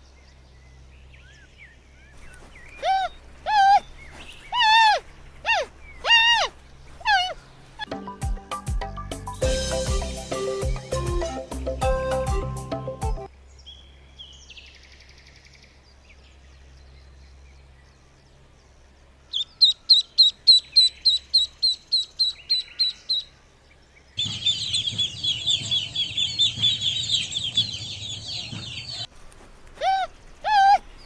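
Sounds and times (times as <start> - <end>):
bird chirping: 0.0 - 7.9, 13.4 - 29.1
background music: 7.9 - 13.3.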